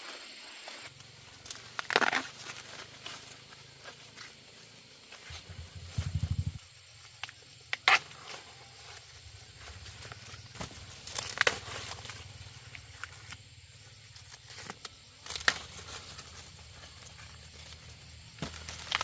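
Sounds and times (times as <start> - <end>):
dry material rustling and crackling: 14.0 - 19.0.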